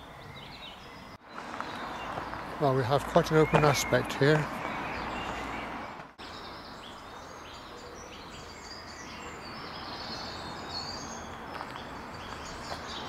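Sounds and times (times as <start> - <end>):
outdoor background hiss: 0.0 - 13.0
small birds chirping and warbling: 0.0 - 13.0.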